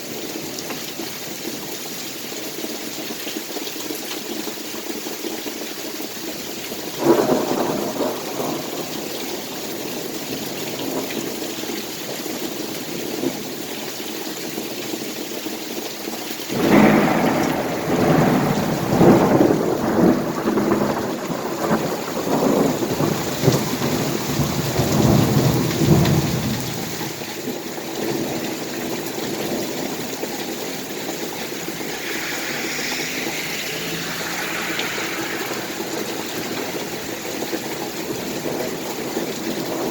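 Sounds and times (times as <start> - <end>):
heavy rain: 6.9 - 11.3, 16.5 - 39.9
rolling thunder: 16.5 - 27.2, 31.2 - 39.4
thunderclap: 16.5 - 27.2, 31.2 - 39.4.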